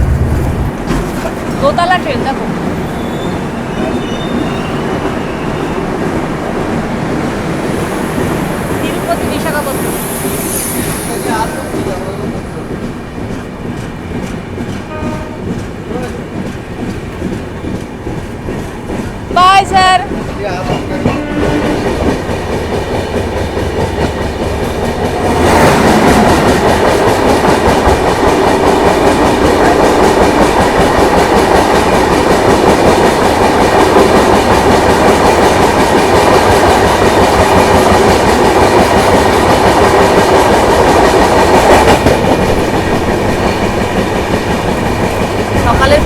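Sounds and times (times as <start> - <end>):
train coach rumbling and rattling: 0.0 - 46.0.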